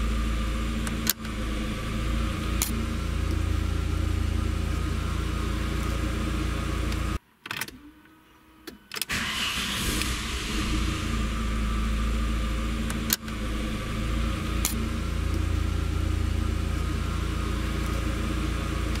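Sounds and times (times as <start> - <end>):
car engine idling: 0.0 - 7.2, 9.1 - 19.0.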